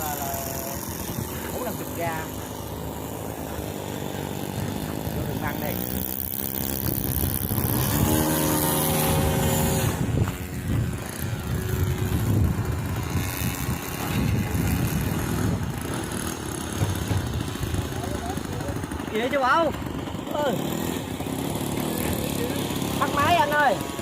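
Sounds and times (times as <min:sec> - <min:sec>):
model plane propellers whining: 0:00.0 - 0:24.0
wind on microphone: 0:04.4 - 0:18.7.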